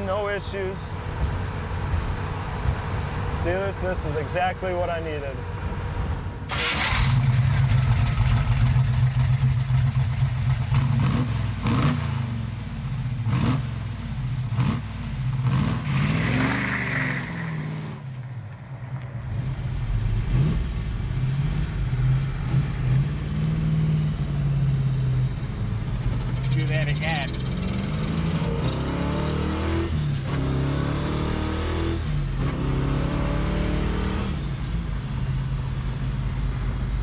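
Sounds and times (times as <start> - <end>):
car engine revving hard: 6.5 - 18.0, 19.2 - 35.1.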